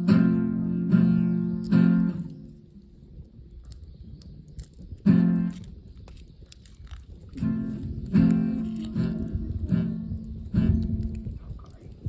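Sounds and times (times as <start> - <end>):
acoustic guitar strums: 0.0 - 2.5.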